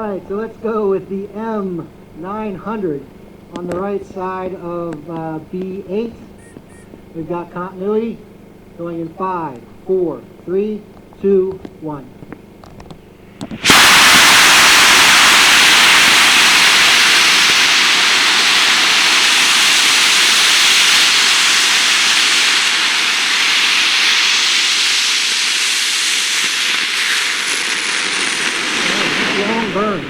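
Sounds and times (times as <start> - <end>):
rocket motor rushing hiss: 13.0 - 30.0.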